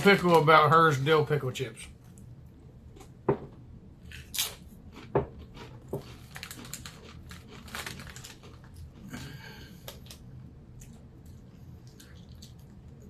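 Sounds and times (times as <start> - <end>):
chips crunching and crinkling: 4.1 - 10.2.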